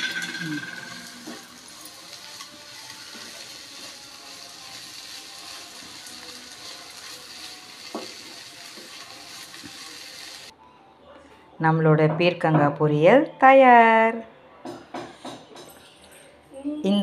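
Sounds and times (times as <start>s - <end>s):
stir fry sizzling in a pan: 0.0s - 10.5s.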